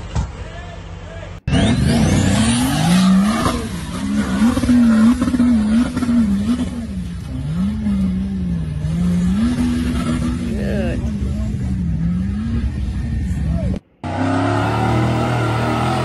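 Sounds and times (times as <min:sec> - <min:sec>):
engine revving hard: 0:01.5 - 0:13.4, 0:14.0 - 0:16.0.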